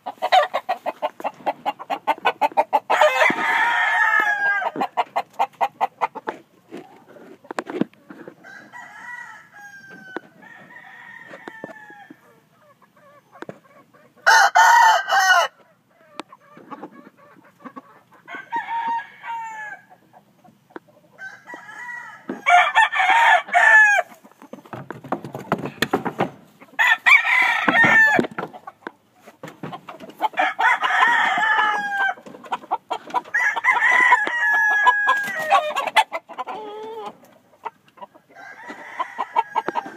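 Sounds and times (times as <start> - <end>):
roosters crowing: 0.0 - 5.3, 8.3 - 12.5, 14.2 - 16.2, 18.2 - 20.1, 21.1 - 24.9, 25.5 - 28.8, 29.6 - 37.2, 38.1 - 39.9.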